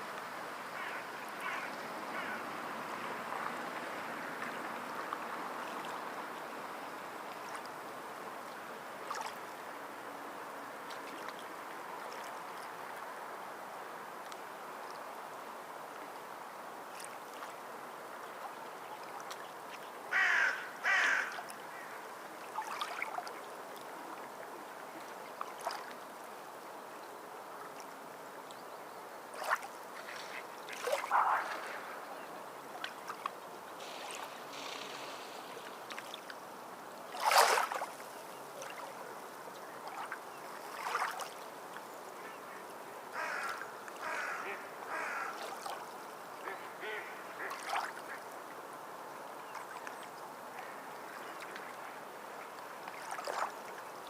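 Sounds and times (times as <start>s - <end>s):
water noise: 0.0s - 54.0s.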